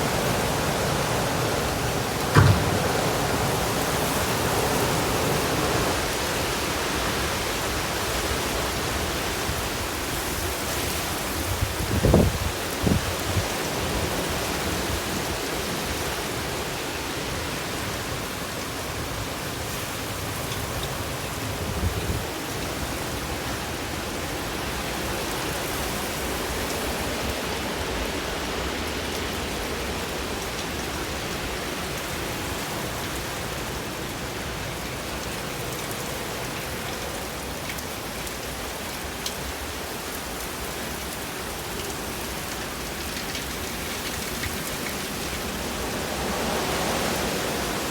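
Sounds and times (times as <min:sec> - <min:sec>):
storm wind: 0:00.0 - 0:07.9
heavy rain downpour: 0:00.0 - 0:47.9.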